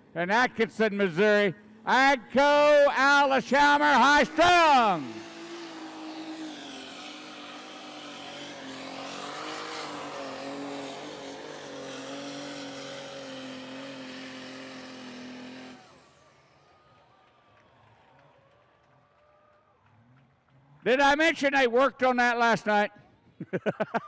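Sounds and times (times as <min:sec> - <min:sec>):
tractor engine at high revs: 0:00.0 - 0:18.6.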